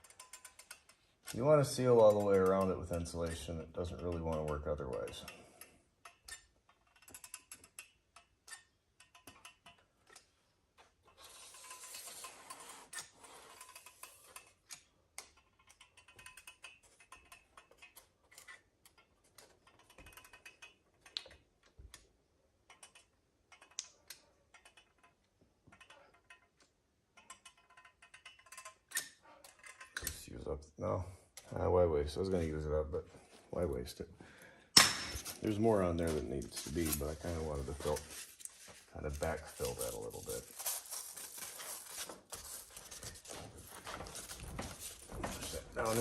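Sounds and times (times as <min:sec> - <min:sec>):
faint clicks and ticks: 0:00.0 - 0:31.6.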